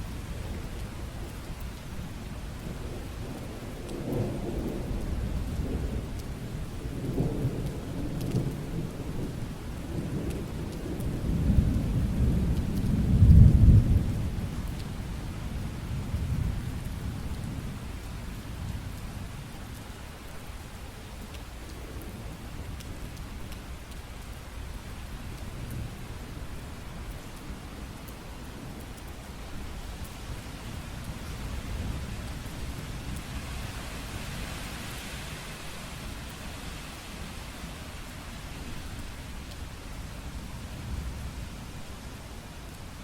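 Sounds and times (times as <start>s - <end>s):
steady rain falling: 0.0s - 43.0s.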